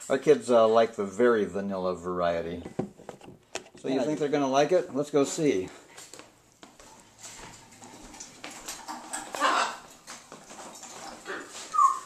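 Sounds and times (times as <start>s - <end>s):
footsteps: 2.7s - 12.0s
parrot call: 11.3s - 12.0s.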